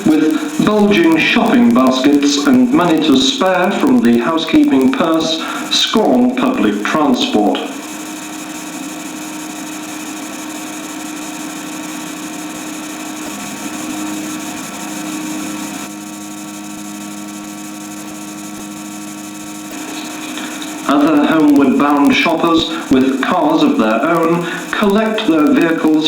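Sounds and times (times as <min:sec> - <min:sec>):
hiss: 0:00.0 - 0:06.0, 0:19.6 - 0:25.6
motor-like drone: 0:00.0 - 0:26.0.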